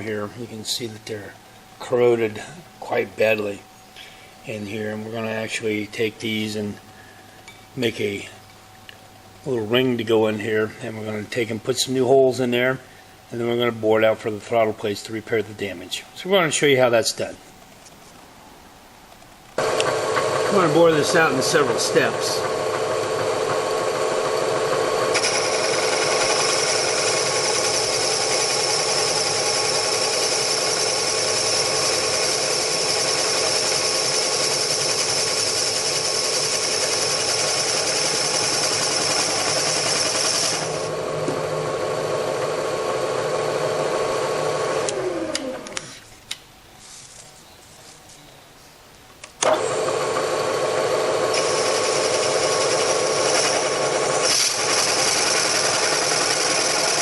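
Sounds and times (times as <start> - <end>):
motor hum: 19.4 - 45.8, 49.4 - 57.0
spindle winding down: 19.6 - 45.8, 49.4 - 57.0
boring machine whining: 19.6 - 45.9, 49.4 - 57.0.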